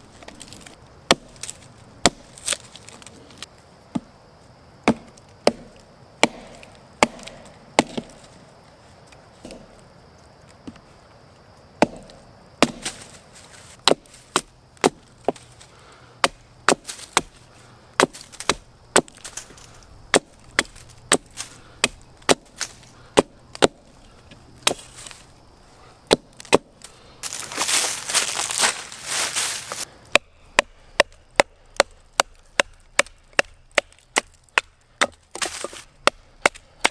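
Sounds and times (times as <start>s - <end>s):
wood being chopped: 0.2s - 3.1s, 4.8s - 8.3s, 9.4s - 9.8s, 11.8s - 13.2s, 13.8s - 15.4s, 16.2s - 17.4s, 18.0s - 23.9s, 24.6s - 25.2s, 26.0s - 28.7s, 30.1s - 36.9s
rustling noise: 12.8s - 14.3s, 26.8s - 29.9s.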